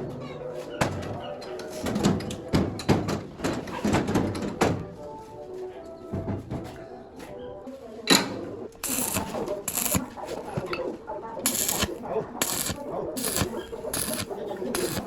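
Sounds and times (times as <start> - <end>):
background music: 0.0 - 15.0
tools knocking and clattering: 0.8 - 4.9.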